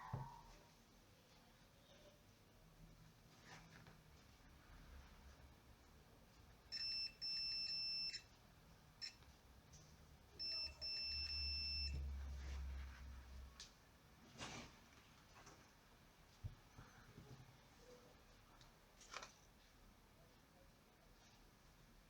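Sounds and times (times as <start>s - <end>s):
high electronic beep: 10.4s - 12.0s.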